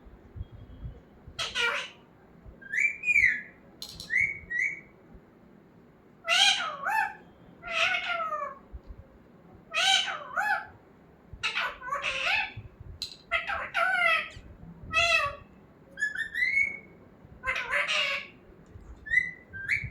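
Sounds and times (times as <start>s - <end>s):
parrot squawking: 1.4s - 2.0s, 6.2s - 8.6s, 9.7s - 10.7s, 11.4s - 12.6s, 13.3s - 18.4s.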